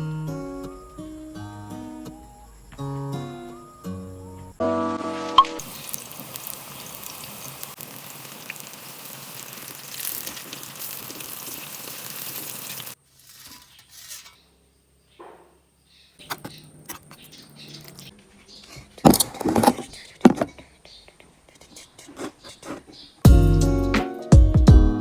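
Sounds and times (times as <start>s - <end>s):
food sizzling in a frying pan: 5.6s - 13.7s.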